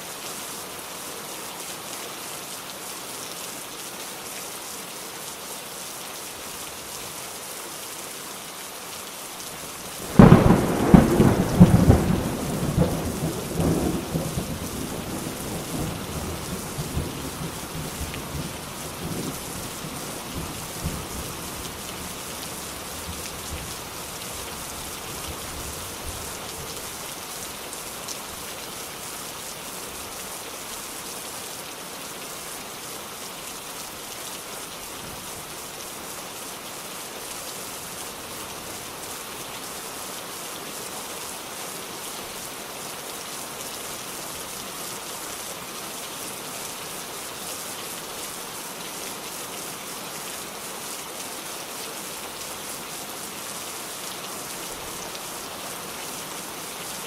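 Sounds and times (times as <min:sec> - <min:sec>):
steady rain falling: 0:00.0 - 0:57.0
thunderclap cracking and rumbling: 0:10.1 - 0:15.9.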